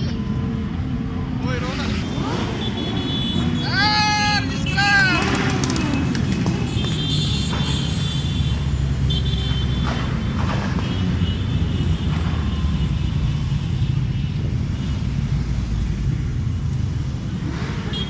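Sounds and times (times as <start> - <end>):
motorcycles riding by: 0.0 - 13.9.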